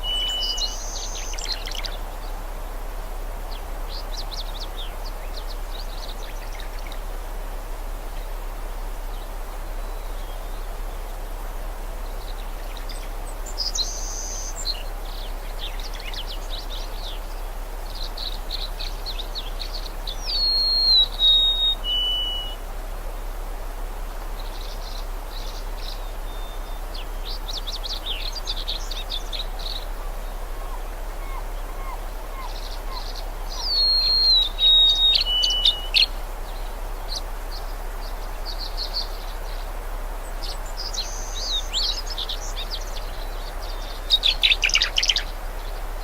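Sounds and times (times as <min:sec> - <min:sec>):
whistled bird call: 0:00.0 - 0:01.9, 0:20.2 - 0:22.6, 0:29.6 - 0:36.1
background wash: 0:00.0 - 0:46.0
songbirds chirping in trills: 0:00.0 - 0:46.0.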